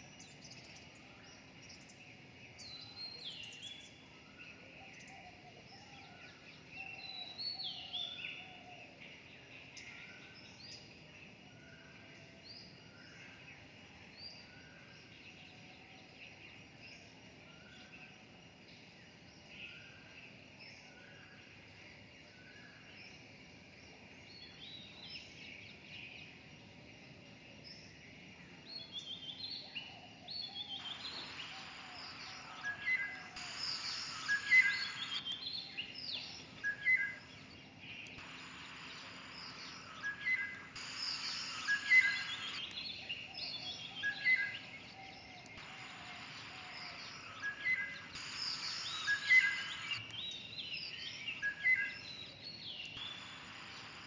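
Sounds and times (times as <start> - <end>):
birds chirping and trilling: 28.5 - 54.0.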